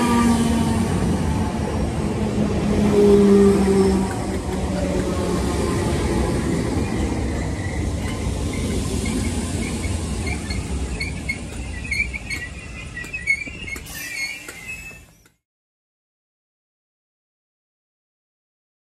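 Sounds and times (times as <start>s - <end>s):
electric train rumbling past: 0.0s - 15.3s
wheels squeaking: 6.7s - 15.4s.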